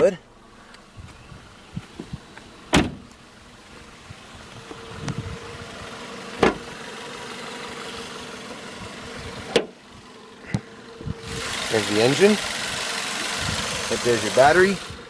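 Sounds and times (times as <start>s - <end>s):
car engine idling: 0.0s - 15.0s
car hood clunks: 2.0s - 3.2s, 6.4s - 6.7s, 9.4s - 9.8s.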